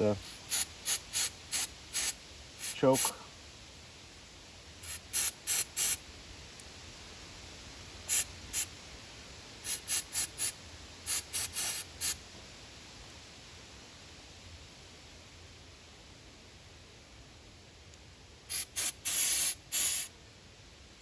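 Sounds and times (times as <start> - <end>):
hissing spray bursts: 0.0 - 3.2, 4.8 - 6.0, 8.0 - 8.7, 9.6 - 12.2, 18.5 - 20.1.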